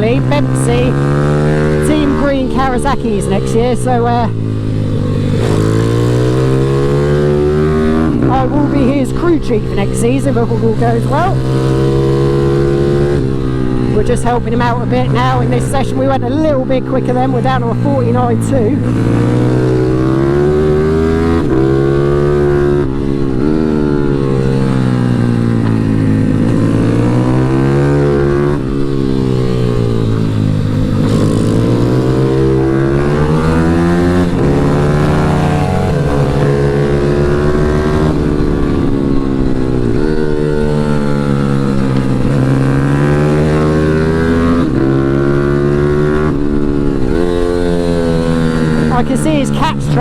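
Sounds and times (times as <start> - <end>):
motorbike engine revving: 0.0 - 50.0.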